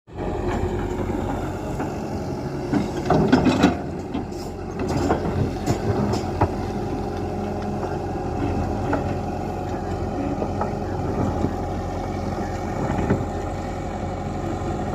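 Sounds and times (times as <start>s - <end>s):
excavator diesel engine running: 0.1s - 14.9s
machine knocks and clatter: 0.4s - 7.7s.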